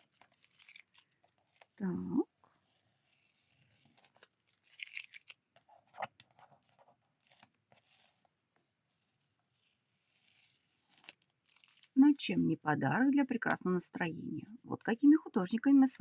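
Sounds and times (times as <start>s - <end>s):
paper card crackling and tearing: 0.0s - 1.8s, 2.5s - 8.3s, 10.0s - 12.0s.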